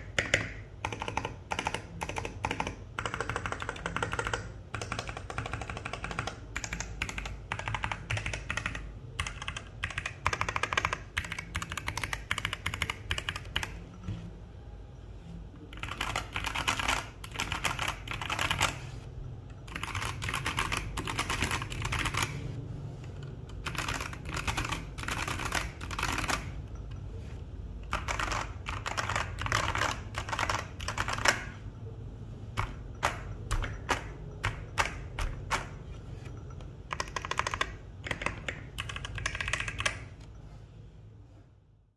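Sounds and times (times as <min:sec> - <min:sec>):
mechanical keyboard typing: 0:00.0 - 0:14.1, 0:15.6 - 0:27.0, 0:27.8 - 0:31.7, 0:32.4 - 0:40.3.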